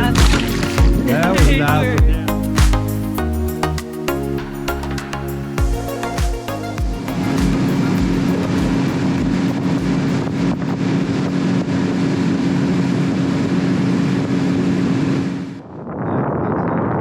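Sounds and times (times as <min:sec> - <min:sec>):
outboard motor running: 0:00.0 - 0:03.1.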